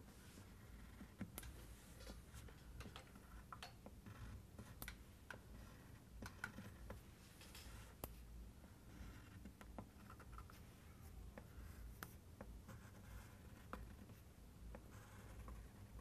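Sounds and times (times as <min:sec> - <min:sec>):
pencil drawing on paper: 0:00.1 - 0:02.5, 0:04.0 - 0:04.8, 0:08.8 - 0:16.0.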